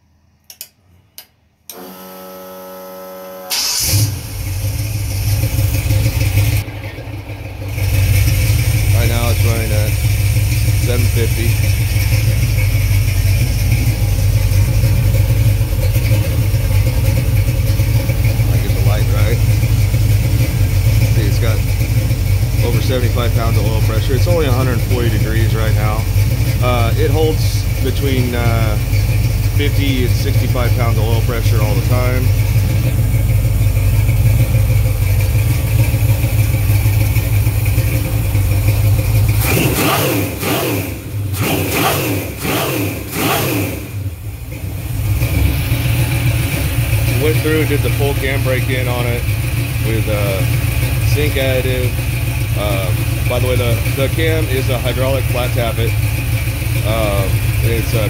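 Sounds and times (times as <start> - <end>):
engine revving: 1.7 - 58.0
car engine idling: 3.5 - 58.0.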